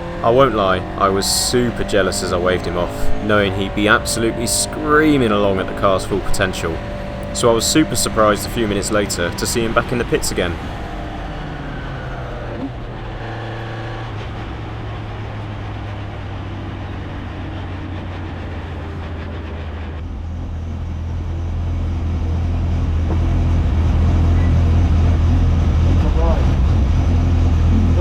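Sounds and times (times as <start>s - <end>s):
race car engine idling: 0.0s - 28.0s.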